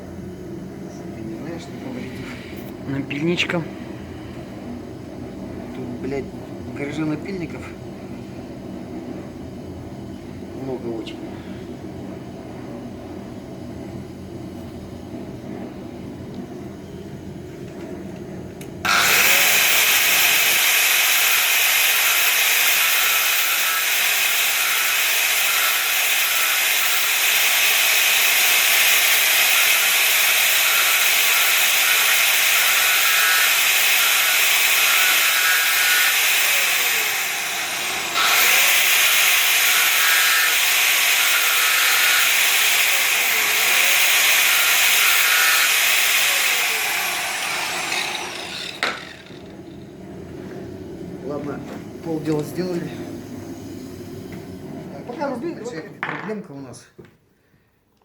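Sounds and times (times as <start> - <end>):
power tool grinding: 18.8 - 49.8.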